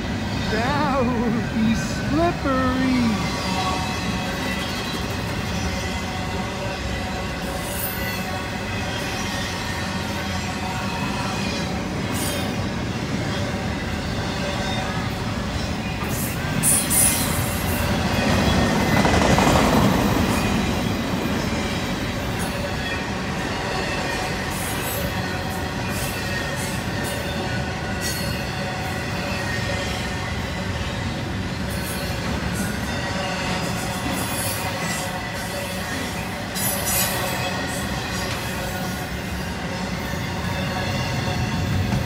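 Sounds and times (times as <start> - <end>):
train wheels rumbling over rails: 3.2 - 42.0
rail clicks: 31.7 - 39.4.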